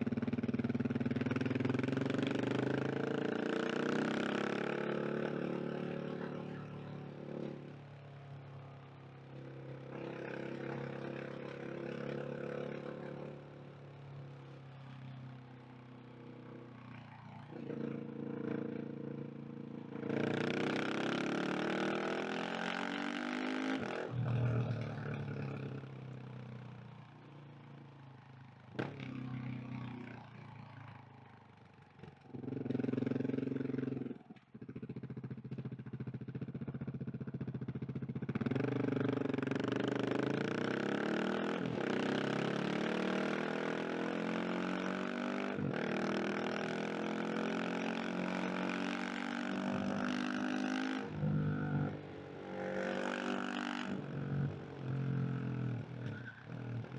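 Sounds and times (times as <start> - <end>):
motorcycle engine revving: 17.4 - 26.1, 32.0 - 56.9.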